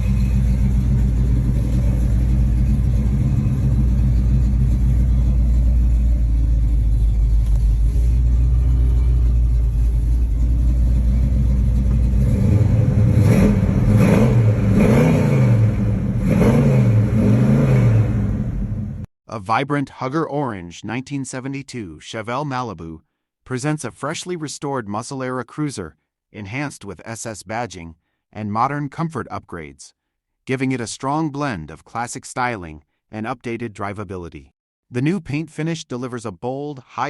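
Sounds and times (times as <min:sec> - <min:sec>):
car engine idling and revving: 0:00.0 - 0:19.1.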